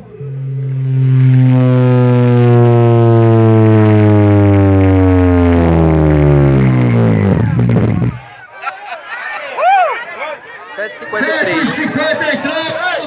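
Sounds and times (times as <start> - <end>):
loud bass tone falling in pitch: 0.0 - 8.4.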